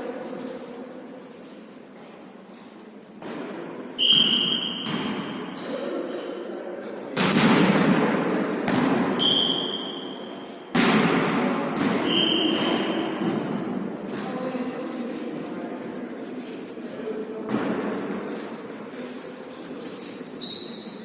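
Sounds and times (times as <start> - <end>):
volleyball thuds echoing in hall: 1.9 - 18.8.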